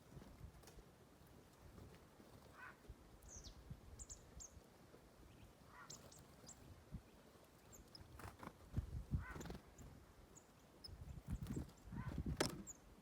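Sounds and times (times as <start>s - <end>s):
faint birds chirping: 0.0s - 13.0s
harsh low bird calls: 9.1s - 9.9s, 10.8s - 12.9s.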